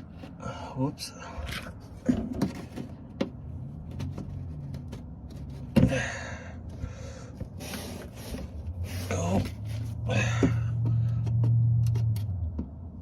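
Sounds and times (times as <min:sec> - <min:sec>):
hand tools clicking and tapping: 0:10.4 - 0:12.8.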